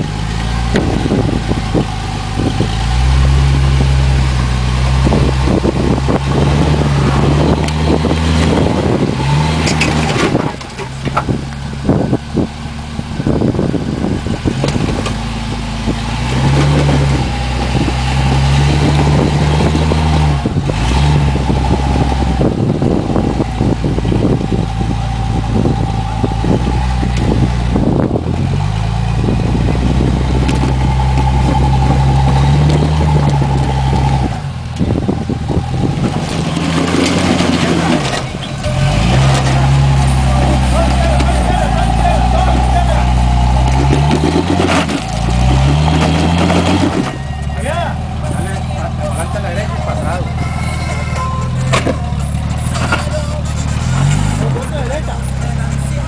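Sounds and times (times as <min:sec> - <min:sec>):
off-road engine revving: 0:00.0 - 0:56.0
knocks and rattles: 0:04.4 - 0:12.2.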